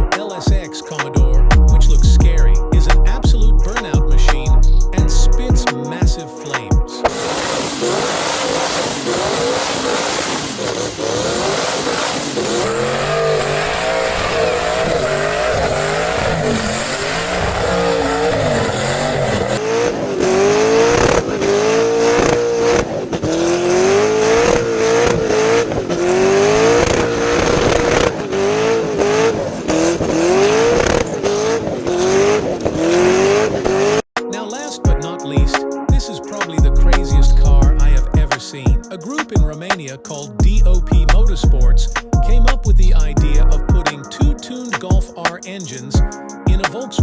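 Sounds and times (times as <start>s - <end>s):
exhaust cracks: 7.1s - 34.0s, 39.2s - 44.0s
car engine revving hard: 7.1s - 34.1s.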